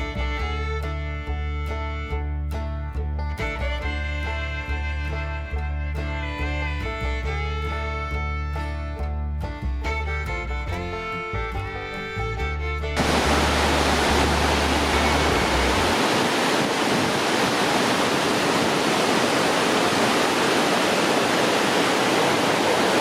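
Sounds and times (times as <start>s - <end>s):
fiddle music: 0.0s - 23.0s
waterfall rushing: 13.0s - 23.0s.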